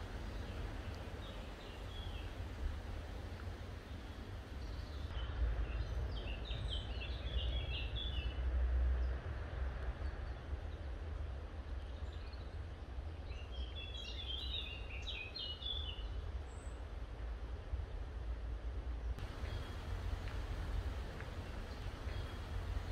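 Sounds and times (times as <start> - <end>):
bird chirping: 0.1 - 2.4, 19.2 - 22.9
low rumble: 19.2 - 22.9.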